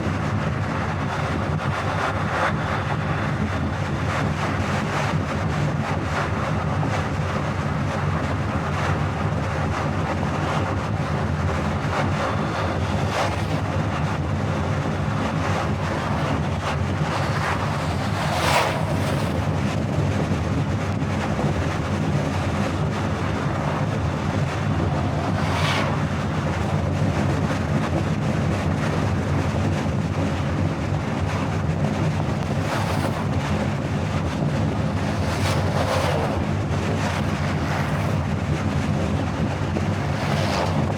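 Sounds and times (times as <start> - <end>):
car road and wind noise: 0.0 - 40.9
passing whoosh: 22.3 - 27.8.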